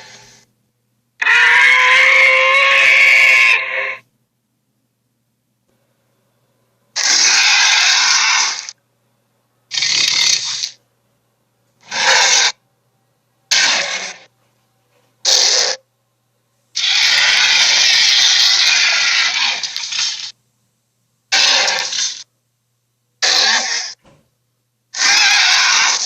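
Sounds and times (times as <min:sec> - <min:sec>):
cartoon dinosaur roars: 0:01.2 - 0:04.0, 0:07.0 - 0:08.8, 0:09.7 - 0:10.8, 0:11.8 - 0:12.6, 0:13.5 - 0:14.3, 0:15.3 - 0:15.8, 0:16.8 - 0:20.0, 0:21.3 - 0:22.2, 0:23.2 - 0:24.0, 0:25.0 - 0:26.0.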